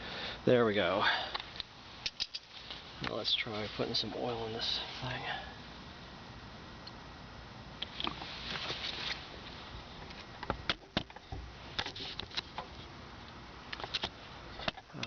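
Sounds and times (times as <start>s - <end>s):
sharp clicks and light knocks: 1.3s - 3.2s, 10.0s - 12.8s, 13.7s - 15.0s.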